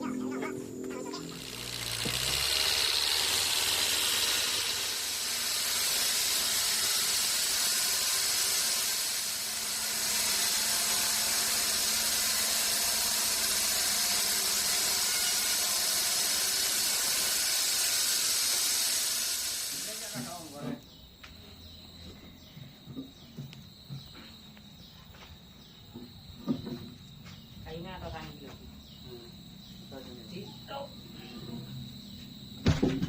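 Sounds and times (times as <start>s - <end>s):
sawmill machinery hissing: 0.7s - 20.8s.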